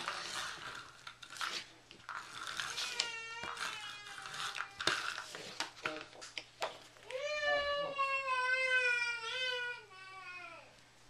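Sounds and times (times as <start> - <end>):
toddler crying: 2.6 - 5.0, 7.0 - 10.8.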